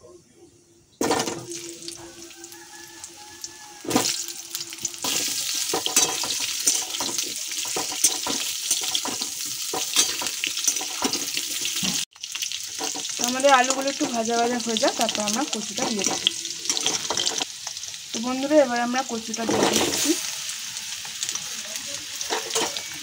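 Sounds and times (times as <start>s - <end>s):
potatoes sizzling in oil: 1.0s - 23.0s
metal spatula scraping a pan: 3.9s - 12.0s, 12.6s - 13.3s, 15.7s - 17.5s, 22.2s - 23.0s.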